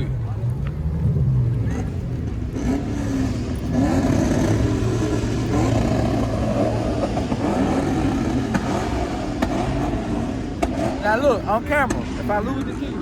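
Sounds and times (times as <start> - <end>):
background chatter: 0.0 - 6.1
car engines rumbling: 0.0 - 13.0.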